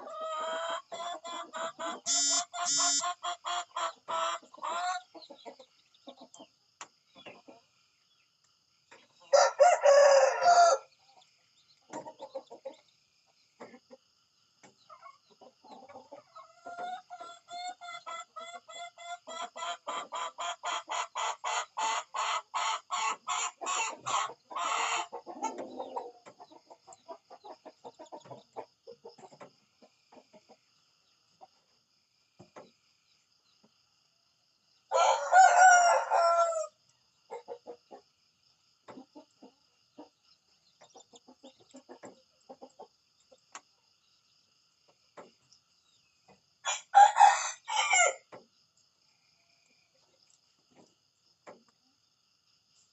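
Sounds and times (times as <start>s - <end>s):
chickens clucking: 0.0s - 31.8s, 34.9s - 48.4s
rooster crowing: 2.0s - 3.2s, 9.3s - 10.9s, 34.9s - 36.8s, 46.6s - 48.3s.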